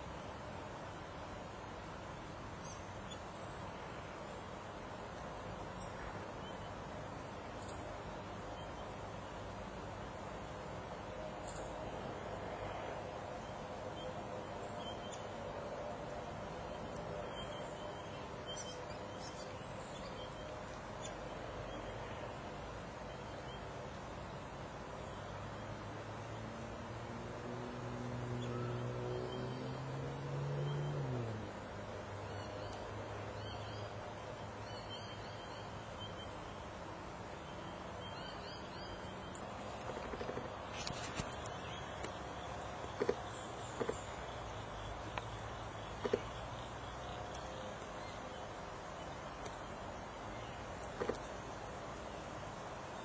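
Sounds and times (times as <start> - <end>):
steady background hiss: 0.0 - 53.0
birds chirping: 16.6 - 26.7, 32.0 - 53.0
faint bird chirps: 16.7 - 22.4.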